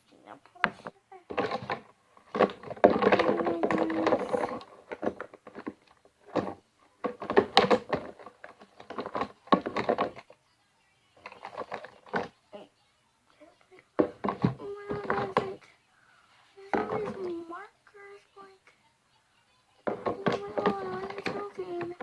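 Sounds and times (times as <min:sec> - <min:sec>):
objects knocking and thunking: 0:00.6 - 0:10.4, 0:11.2 - 0:12.4, 0:14.0 - 0:15.6, 0:16.6 - 0:17.6, 0:19.8 - 0:22.0
rustling clatter: 0:00.6 - 0:10.4, 0:11.2 - 0:12.4, 0:14.0 - 0:15.7, 0:16.3 - 0:17.6, 0:19.8 - 0:22.0.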